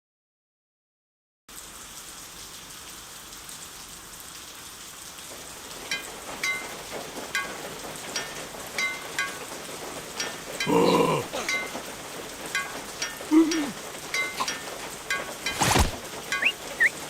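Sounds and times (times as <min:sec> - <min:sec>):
rain hiss: 0:01.5 - 0:17.0
drops plinking with ringing tone: 0:12.5 - 0:15.6, 0:16.3 - 0:17.0.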